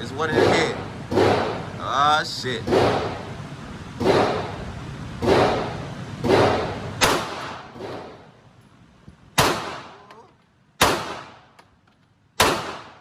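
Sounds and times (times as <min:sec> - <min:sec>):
pistol shots echoing: 0:00.3 - 0:01.7, 0:02.7 - 0:03.3, 0:05.2 - 0:08.2, 0:09.4 - 0:10.2, 0:10.8 - 0:11.6, 0:12.4 - 0:13.0.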